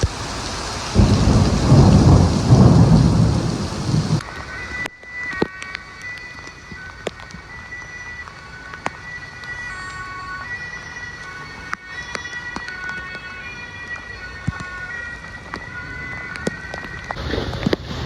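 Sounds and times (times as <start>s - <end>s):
heavy rain: 0.0s - 4.9s, 14.8s - 18.0s
emergency vehicle siren: 0.0s - 18.0s
sharp clicks of raindrops: 0.0s - 18.0s.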